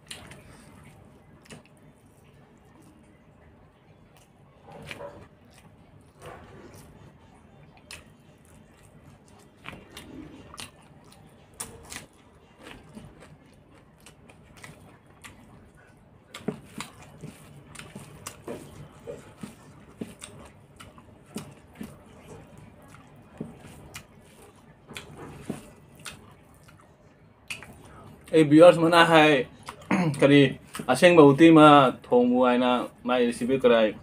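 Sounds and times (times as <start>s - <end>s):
person chewing food: 0.0s - 31.0s.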